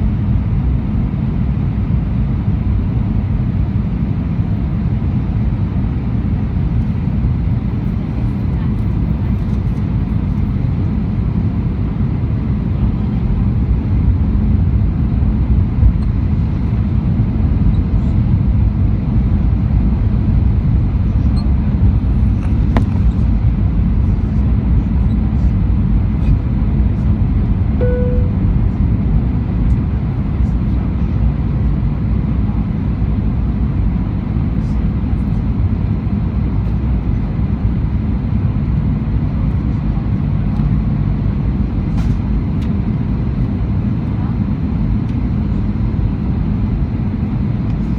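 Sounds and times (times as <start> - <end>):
airplane cabin engine rumble: 0.0 - 47.9
short clear tone: 27.8 - 28.7
faint steady whines: 27.8 - 29.0.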